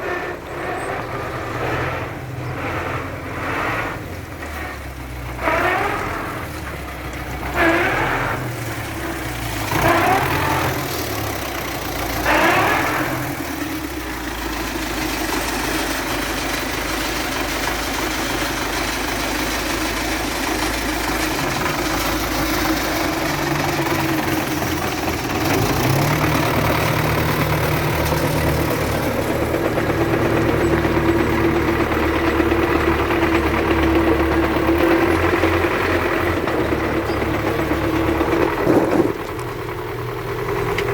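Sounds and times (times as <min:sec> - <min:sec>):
diesel tractor engine running: 0:00.0 - 0:40.9.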